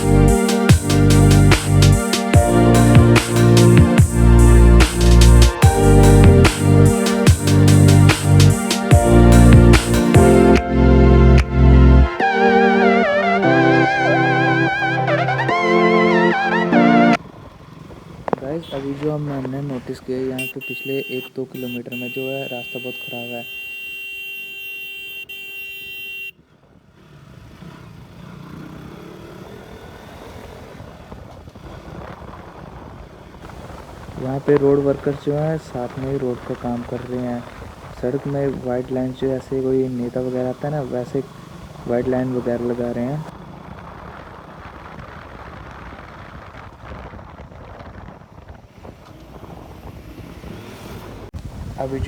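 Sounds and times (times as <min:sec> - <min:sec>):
motorcycle engine running: 0:00.0 - 0:10.4, 0:17.2 - 0:20.7, 0:39.0 - 0:50.4
wind and road noise: 0:00.0 - 0:13.6, 0:14.2 - 0:52.0
motorcycle engine drone: 0:00.0 - 0:52.0
wind rushing over microphone: 0:30.8 - 0:39.4, 0:43.2 - 0:52.0.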